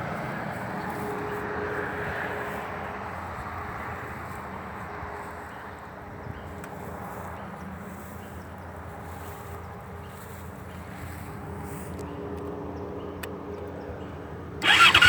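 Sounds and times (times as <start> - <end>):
motorcycle engine running: 14.6 - 15.0.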